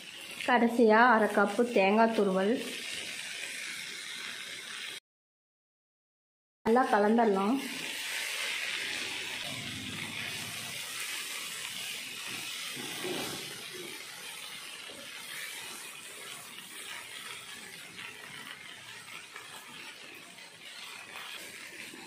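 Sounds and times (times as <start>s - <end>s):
vegetables sizzling in a pan: 0.0s - 5.0s, 6.7s - 22.0s
wooden spatula scraping and knocking: 12.3s - 14.0s.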